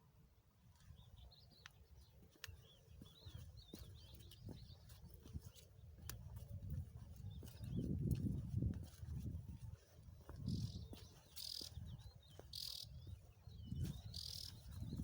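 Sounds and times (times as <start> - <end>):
songbird warbling: 10.5 - 13.1, 14.0 - 14.6.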